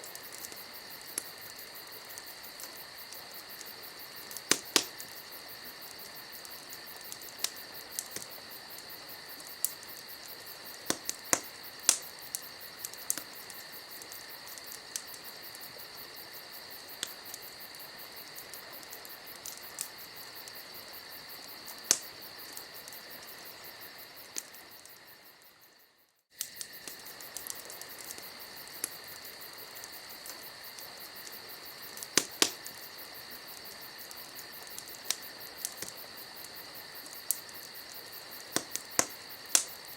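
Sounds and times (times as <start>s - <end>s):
crickets chirping: 0.0s - 39.9s
wood fire crackling and popping: 0.0s - 39.9s.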